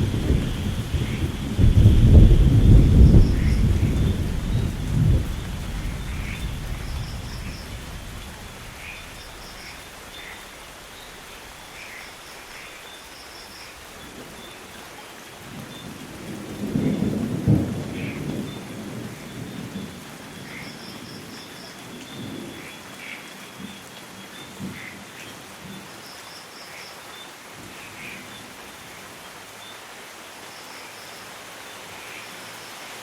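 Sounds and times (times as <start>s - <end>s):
rolling thunder: 0.0s - 9.6s, 16.3s - 20.0s
steady rain: 0.0s - 33.0s.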